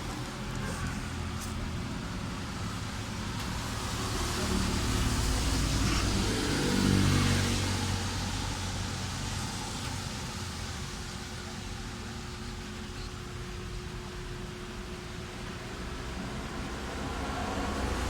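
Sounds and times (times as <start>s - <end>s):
motor vehicle passing: 0.0s - 9.7s.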